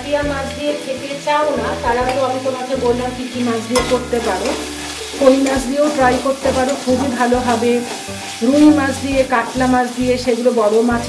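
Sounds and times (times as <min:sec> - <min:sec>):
paste sizzling in oil: 0:00.0 - 0:11.0
metal spatula scraping a pan: 0:03.6 - 0:10.5.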